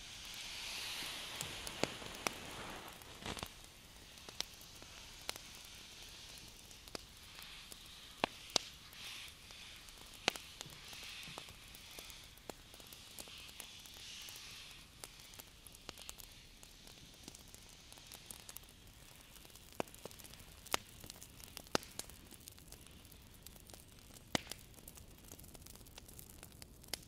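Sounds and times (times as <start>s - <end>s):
light clicks and crackles: 0.1s - 27.0s.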